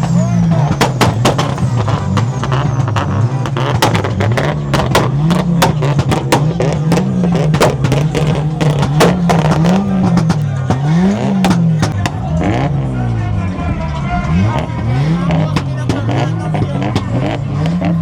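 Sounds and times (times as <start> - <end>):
exhaust pops and cracks: 0.0 - 12.7, 14.5 - 18.0
car engine revving hard: 0.0 - 18.0.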